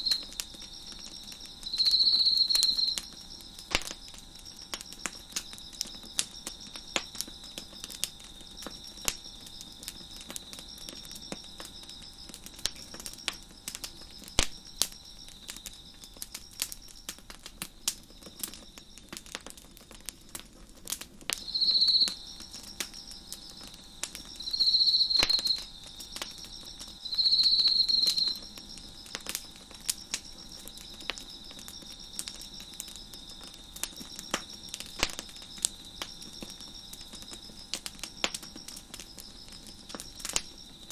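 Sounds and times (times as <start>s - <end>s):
crickets chirping: 0.0s - 40.9s
wood fire crackling and popping: 0.0s - 40.9s
insect trilling loudly: 21.5s - 22.2s, 24.4s - 25.7s.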